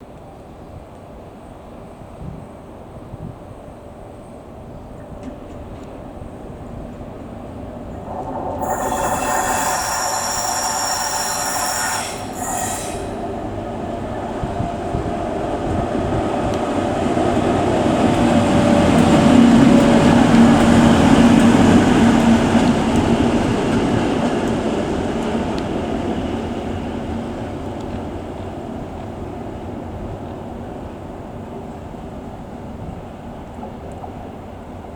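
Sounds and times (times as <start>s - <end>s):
diesel locomotive passing: 4.9s - 34.3s
high-pitched squeal: 7.8s - 14.1s.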